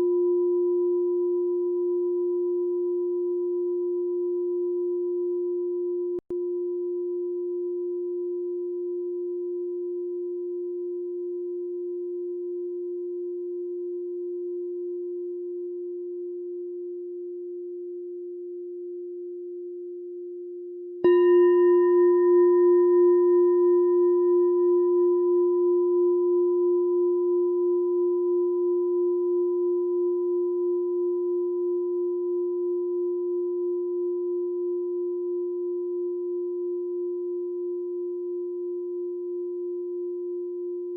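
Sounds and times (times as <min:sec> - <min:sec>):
meditation bell ringing: 0:21.0 - 0:37.1.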